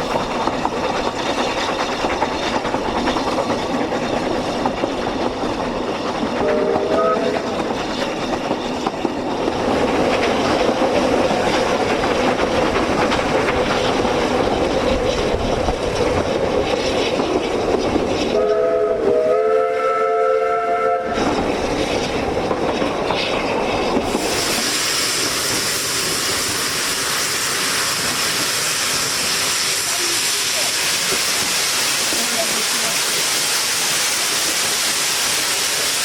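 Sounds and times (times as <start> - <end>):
train running over rails: 0.0 - 36.0
train whistle chord: 6.4 - 7.5, 18.3 - 21.2.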